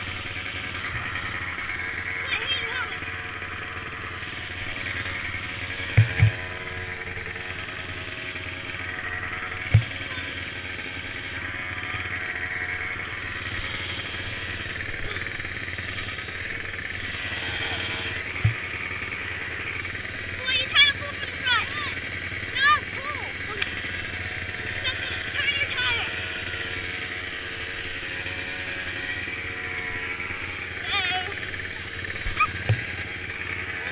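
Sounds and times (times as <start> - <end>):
mini quad engines running: 0.0 - 33.9
short dull thumps: 5.9 - 6.6, 9.7 - 10.3, 17.7 - 18.7, 32.1 - 33.0.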